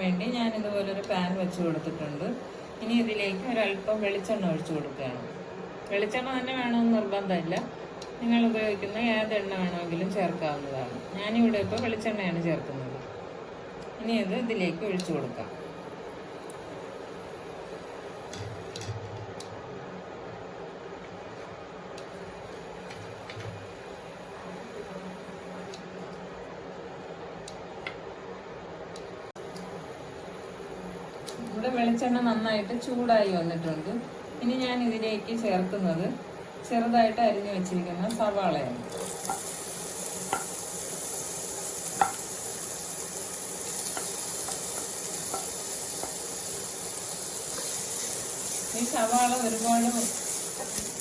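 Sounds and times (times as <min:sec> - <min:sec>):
onion sizzling in oil: 0:01.2 - 0:04.9, 0:08.2 - 0:11.8, 0:29.4 - 0:51.0
oil hissing in a pan: 0:38.8 - 0:51.0
utensil tapping pan: 0:43.8 - 0:46.2.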